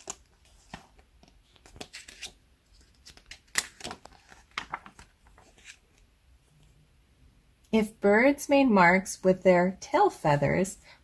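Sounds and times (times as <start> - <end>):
paper pages rustling: 0.0 - 6.1.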